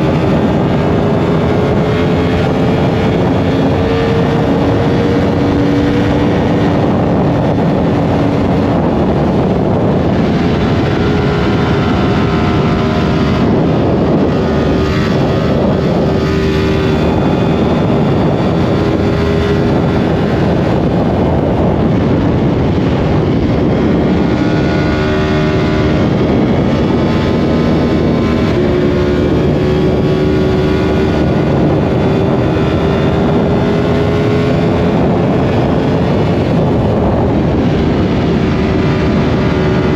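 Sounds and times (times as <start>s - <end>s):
motorcycle engine at speed: 0.0s - 39.9s
wind rushing: 0.0s - 39.9s.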